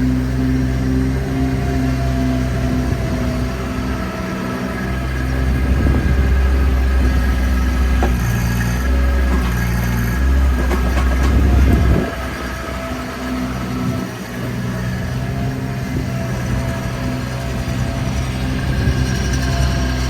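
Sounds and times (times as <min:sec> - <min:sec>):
skid steer engine running: 0:00.0 - 0:20.0
metal clanks: 0:07.0 - 0:12.2.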